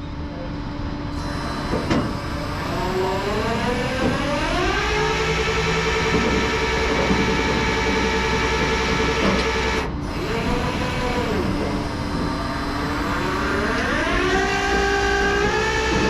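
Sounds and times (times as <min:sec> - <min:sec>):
truck engine whining: 0:01.2 - 0:16.0.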